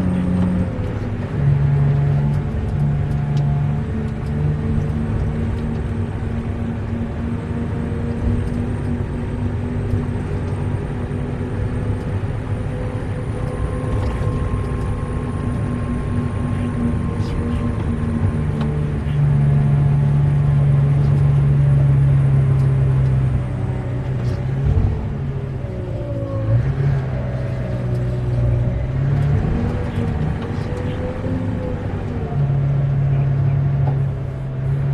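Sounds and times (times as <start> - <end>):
diesel truck engine running: 0.0 - 34.9.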